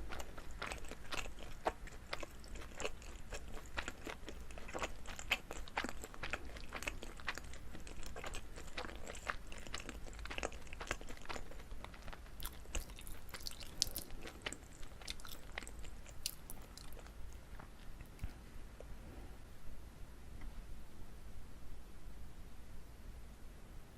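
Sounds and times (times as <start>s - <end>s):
chewing with sticky mouth clicks: 0.0s - 18.4s.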